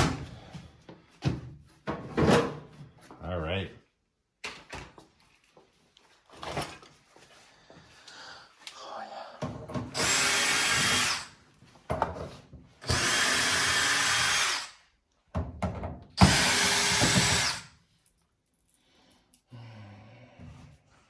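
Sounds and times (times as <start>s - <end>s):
power drill-driver running: 10.0s - 11.3s, 12.8s - 14.8s, 16.2s - 17.7s.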